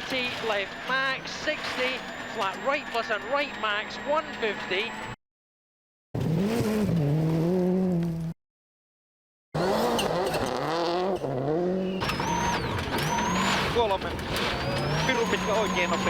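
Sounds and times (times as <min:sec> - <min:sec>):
rally car engine revving: 0:06.2 - 0:08.3, 0:09.6 - 0:16.0
tyre and road noise: 0:09.6 - 0:16.0.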